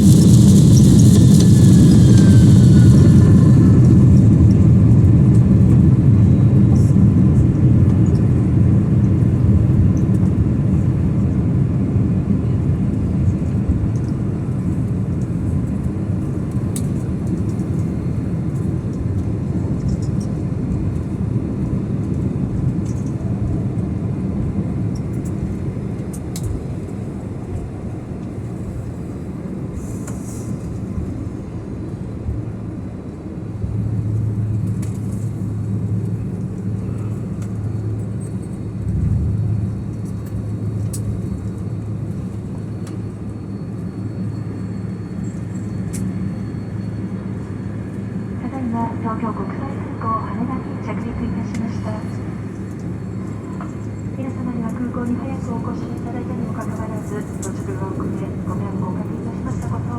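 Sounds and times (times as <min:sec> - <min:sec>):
jet airliner cabin rumble: 0:00.0 - 0:59.9
steady low hum: 0:00.0 - 0:59.9.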